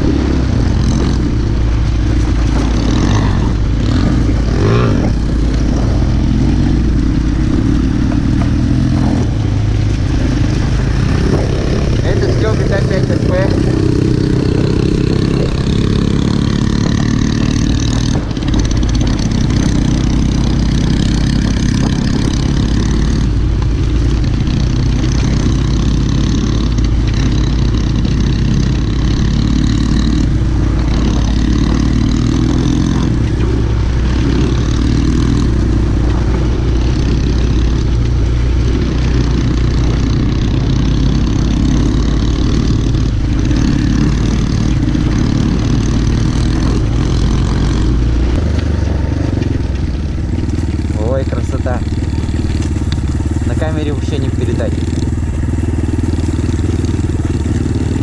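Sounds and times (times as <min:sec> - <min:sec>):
motorbike engine running: 0:00.0 - 0:58.0.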